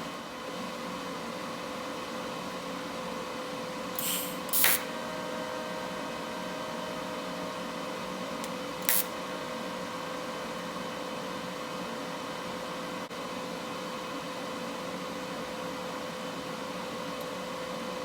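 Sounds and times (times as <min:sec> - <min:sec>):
short hissing bursts: 0:04.0 - 0:04.8
welder humming and hissing: 0:04.0 - 0:09.2.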